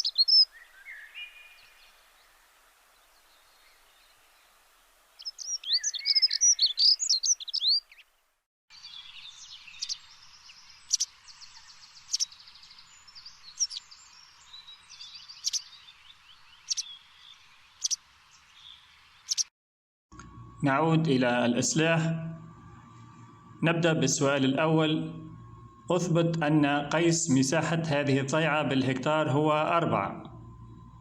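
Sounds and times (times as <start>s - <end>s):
faint outdoor hiss: 0.0s - 19.4s
birds chirping: 0.0s - 19.5s.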